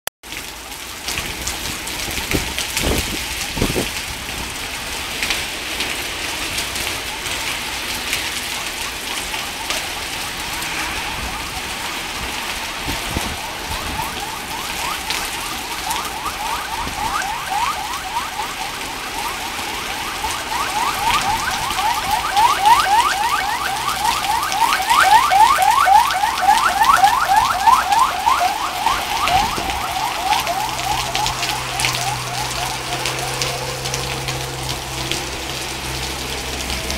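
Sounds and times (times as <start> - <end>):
steady rain falling: 0.2 - 36.9
car alarm whooping: 6.9 - 34.6.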